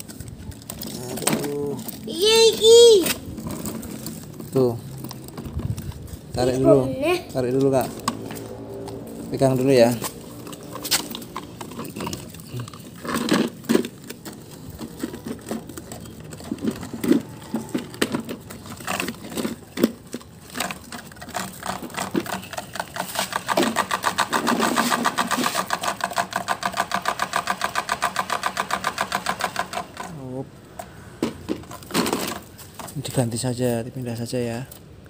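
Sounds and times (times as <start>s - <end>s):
toy motor and gears clattering: 0.0s - 30.9s
plastic toy parts knocking: 11.0s - 30.2s.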